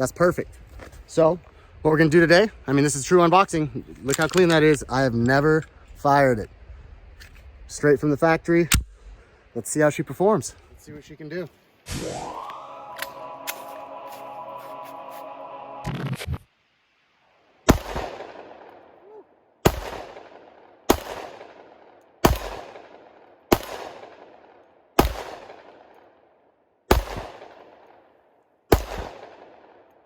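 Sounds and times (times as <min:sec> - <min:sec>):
pistol shots with long echo: 0:17.7 - 0:19.0, 0:19.6 - 0:26.3, 0:26.9 - 0:30.0.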